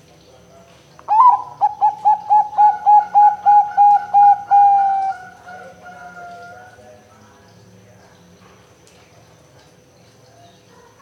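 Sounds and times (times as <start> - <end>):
dove cooing: 1.1 - 6.7.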